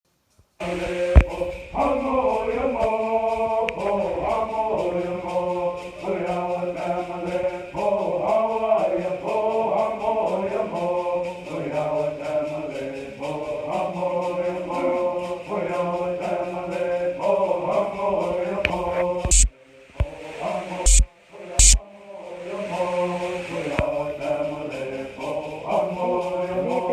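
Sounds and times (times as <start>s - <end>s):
voices singing a chant: 0.6s - 26.9s.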